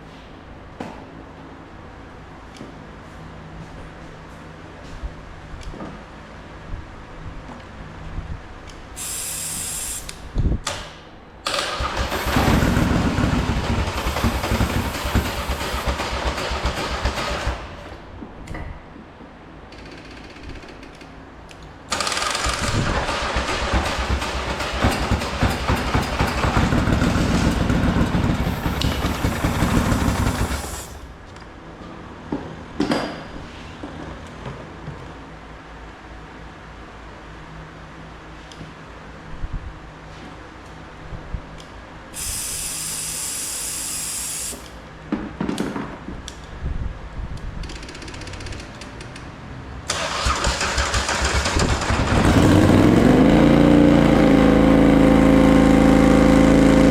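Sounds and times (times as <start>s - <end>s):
aerosol spray hissing: 9.0s - 10.1s, 42.2s - 44.6s
engine cranking on starter: 11.4s - 18.0s, 21.9s - 31.1s, 49.9s - 53.2s.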